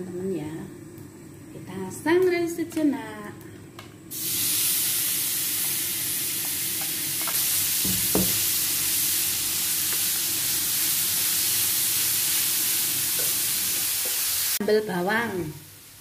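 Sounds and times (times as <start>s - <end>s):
coconut sizzling on a pan: 4.0s - 16.0s.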